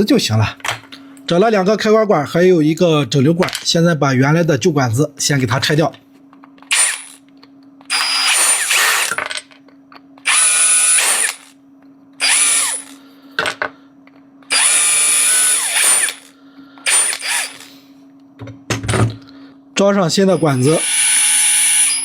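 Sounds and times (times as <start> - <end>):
low electrical hum: 0.0 - 22.0
power tool motor bursts: 6.7 - 7.2, 7.9 - 9.2, 10.2 - 11.6, 12.2 - 13.0, 14.5 - 17.8, 20.3 - 22.0.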